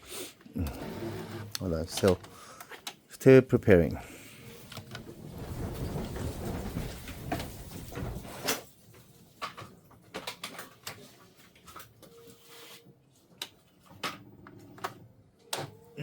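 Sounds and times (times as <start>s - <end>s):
faint printer hum: 0.6s - 1.8s.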